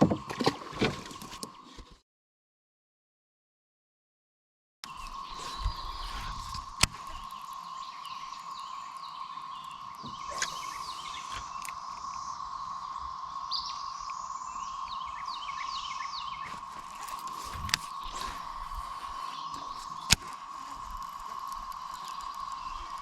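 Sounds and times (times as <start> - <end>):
birds chirping: 4.8 - 23.0
steady hum: 4.8 - 23.0.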